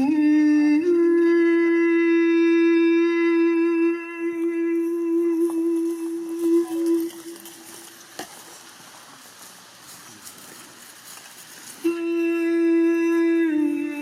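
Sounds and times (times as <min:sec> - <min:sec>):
voice holding long note: 0:00.0 - 0:08.0, 0:11.8 - 0:14.0.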